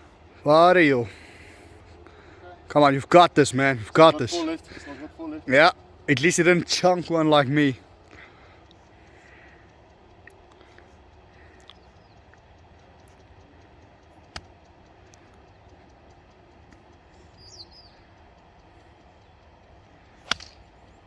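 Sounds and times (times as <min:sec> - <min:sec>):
faint bird chirps: 0:08.1 - 0:21.0
golf club striking ball: 0:20.2 - 0:20.8
small sharp click: 0:20.3 - 0:20.6.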